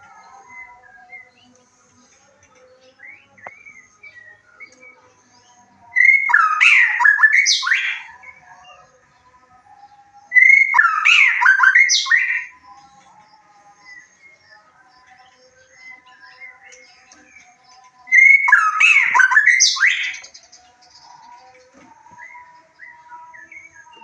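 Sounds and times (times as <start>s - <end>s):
songbird whistling song: 0.0s - 9.0s, 9.6s - 24.0s
birds twittering: 0.0s - 24.0s.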